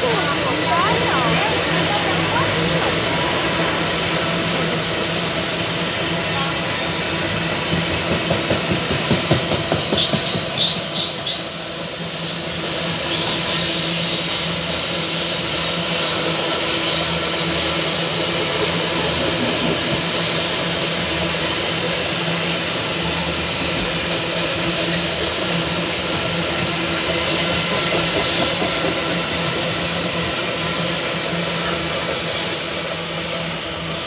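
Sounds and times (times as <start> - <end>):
freight wagons rumbling on rails: 0.0 - 34.0
sharp clacks of wheels: 7.6 - 11.5.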